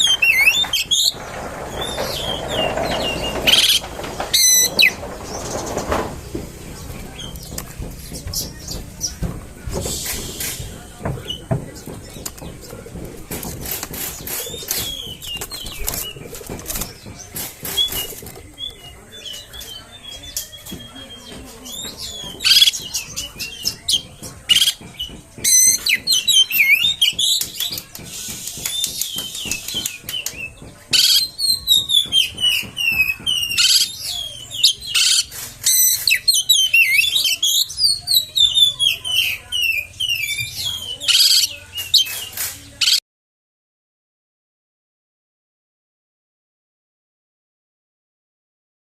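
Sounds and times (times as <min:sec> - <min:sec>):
bird singing whistled song: 0:17.7 - 0:43.0.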